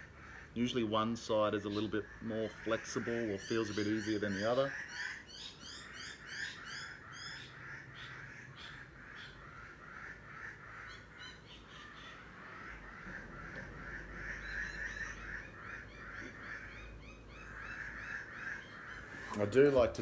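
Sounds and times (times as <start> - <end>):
high bird chirps: 0.0 - 9.4
birds calling: 0.0 - 20.0.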